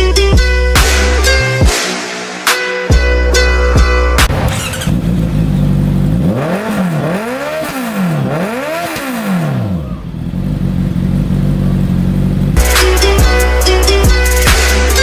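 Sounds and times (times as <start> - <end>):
motorcycle engine idling and revving: 4.2 - 15.0.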